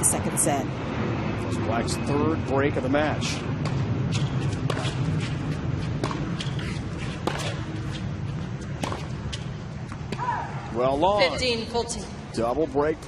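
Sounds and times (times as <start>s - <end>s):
ball hitting tennis racket: 3.6s - 10.5s
tennis ball bounces: 3.6s - 10.5s.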